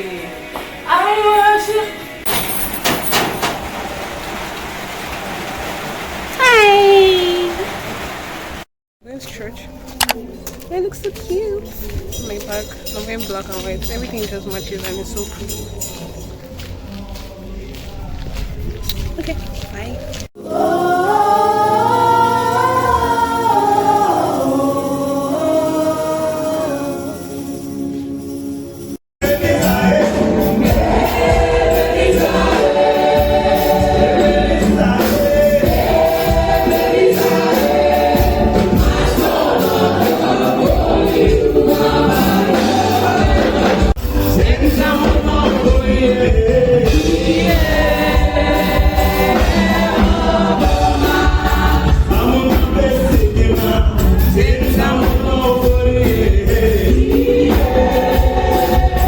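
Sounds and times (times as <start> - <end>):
gospel choir singing with a beat: 20.4 - 27.8, 29.2 - 59.0.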